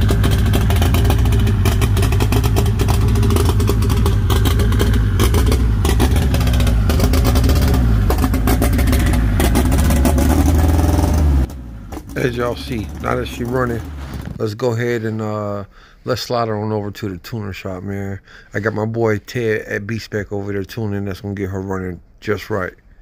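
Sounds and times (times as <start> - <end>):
car engine running: 0.0 - 14.5.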